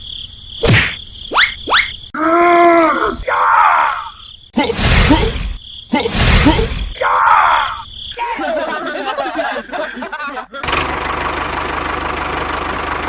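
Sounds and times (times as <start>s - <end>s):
person groaning and exclaiming: 2.2s - 7.8s
harsh loud noise burst: 4.7s - 7.0s.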